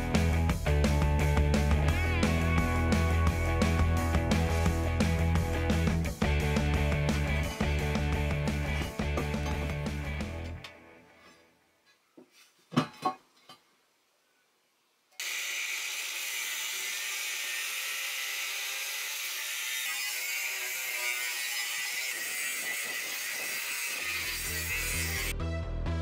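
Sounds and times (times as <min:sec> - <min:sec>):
angle grinder cutting steel: 0:15.2 - 0:25.3.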